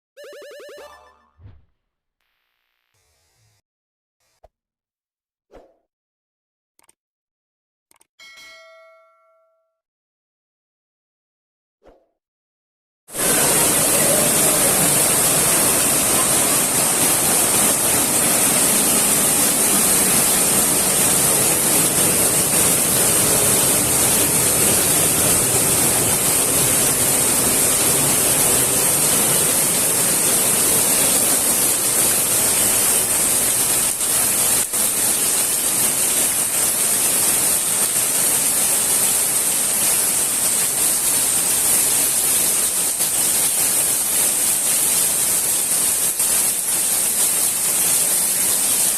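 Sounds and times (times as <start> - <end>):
heavy rain falling: 13.1 - 48.9.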